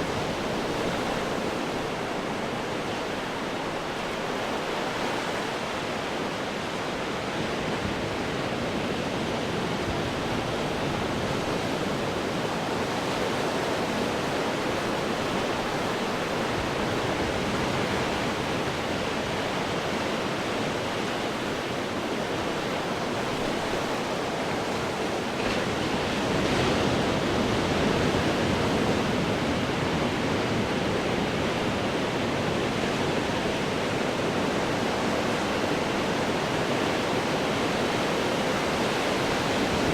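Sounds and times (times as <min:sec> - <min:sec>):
ocean surf breaking on rocks: 0:09.0 - 0:39.9.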